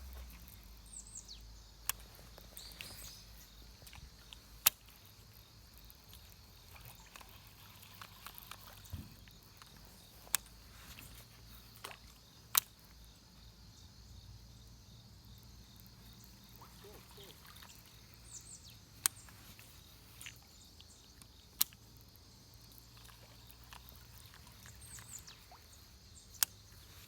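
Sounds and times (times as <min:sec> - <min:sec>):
sharp clicks: 0:01.8 - 0:13.0, 0:18.6 - 0:22.1.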